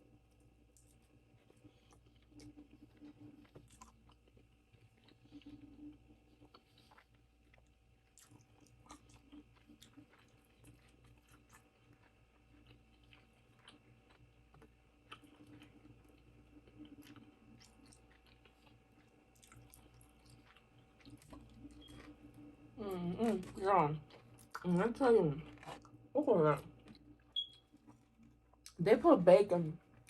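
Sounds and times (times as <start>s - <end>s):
person chewing food: 0.7s - 22.5s, 23.2s - 24.7s, 25.4s - 26.1s.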